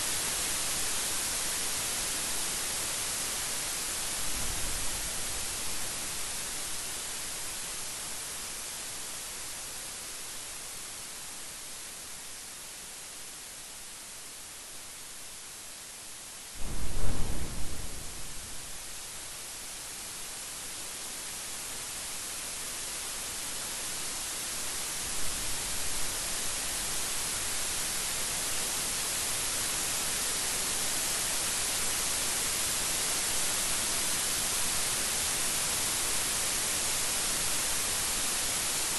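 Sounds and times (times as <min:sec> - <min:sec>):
heavy rain hiss: 0:00.0 - 0:38.9
thunderclap rumbling: 0:16.6 - 0:18.9
soft rumble of thunder: 0:16.6 - 0:19.2.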